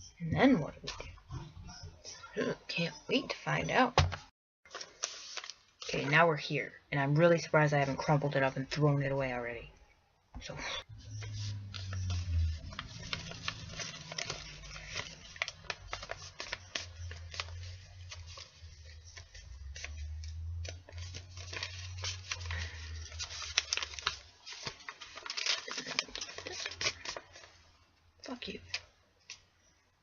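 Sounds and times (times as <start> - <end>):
paper rustling and crinkling: 4.7 - 6.2, 10.9 - 27.8.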